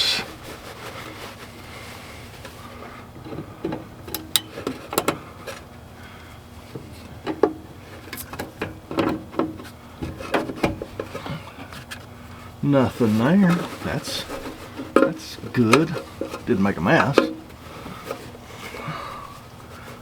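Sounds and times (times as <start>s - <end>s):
steady low hum: 0.0s - 20.0s
hand tools clicking and scraping: 9.5s - 20.0s.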